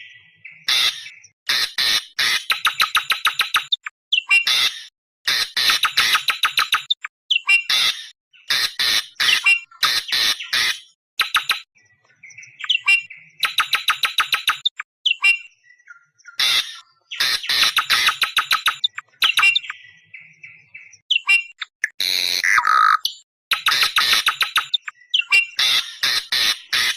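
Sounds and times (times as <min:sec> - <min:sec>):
softer thinner bird calls: 0:00.0 - 0:26.9
bird screeching squawks: 0:00.7 - 0:02.7, 0:04.2 - 0:06.3, 0:07.3 - 0:11.6, 0:16.4 - 0:19.7, 0:21.1 - 0:26.9.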